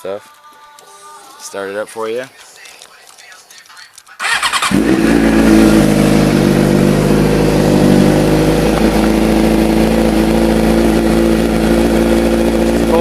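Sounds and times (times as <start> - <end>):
motorcycle engine idling: 4.2 - 13.0.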